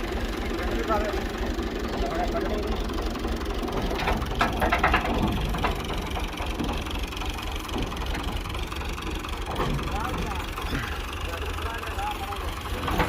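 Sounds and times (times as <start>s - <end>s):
machinery droning: 0.0s - 13.0s.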